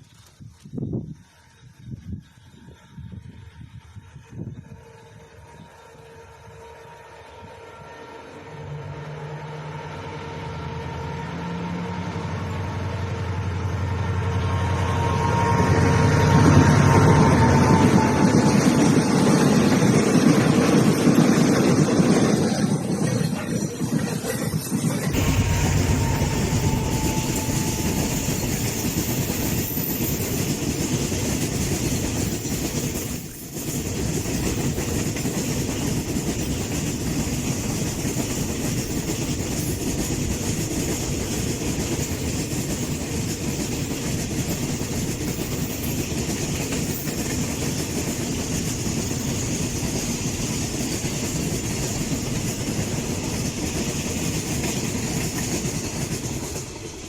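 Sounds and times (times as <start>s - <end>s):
train wheels clattering over rails: 15.2s - 57.0s.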